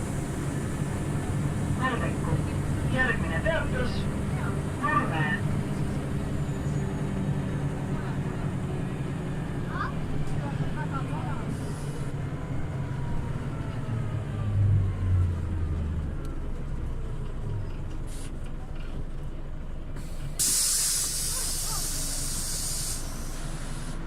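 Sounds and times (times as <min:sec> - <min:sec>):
bus engine rumbling: 0:00.0 - 0:24.0
compressed air hiss: 0:20.0 - 0:24.0.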